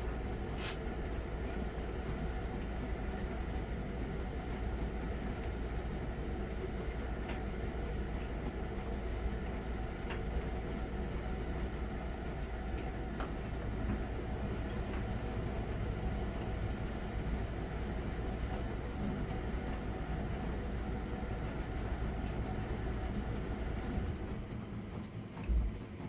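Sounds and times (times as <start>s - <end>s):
washing machine drum rumbling: 25.4s - 25.9s.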